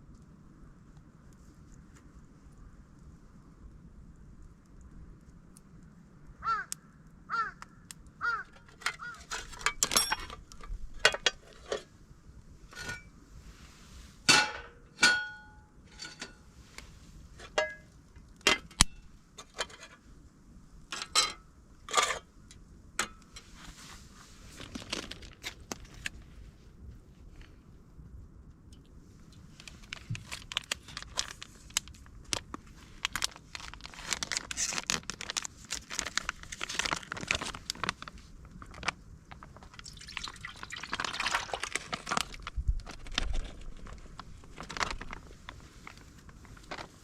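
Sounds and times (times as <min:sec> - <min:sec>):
hard objects clinking and clattering: 0:08.6 - 0:11.9.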